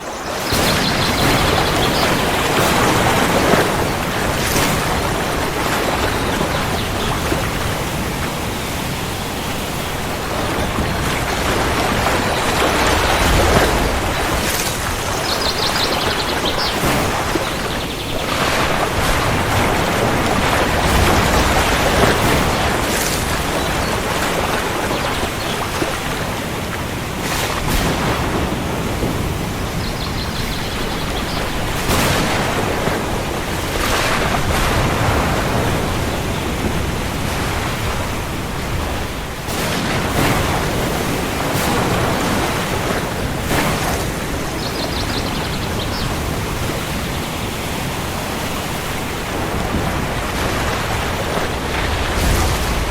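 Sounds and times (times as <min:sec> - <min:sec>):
heavy rain: 0:00.0 - 0:52.9
thunder rumbling: 0:49.5 - 0:52.9.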